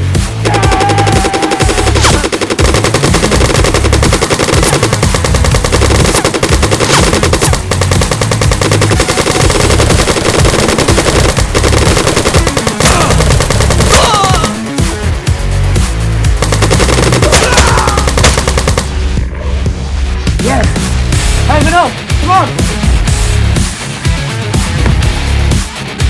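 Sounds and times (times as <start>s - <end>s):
heavy low pulsing beat: 0.0s - 23.8s, 24.6s - 25.6s
rapid machine-gun fire: 0.5s - 15.0s, 16.3s - 19.2s.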